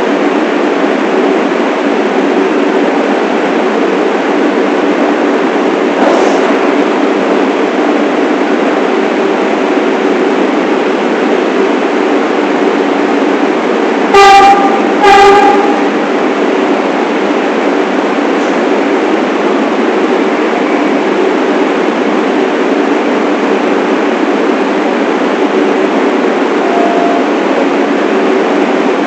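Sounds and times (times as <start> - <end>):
subway train rumbling: 0.0 - 29.0
train horn blasts: 14.1 - 16.0, 26.6 - 27.6.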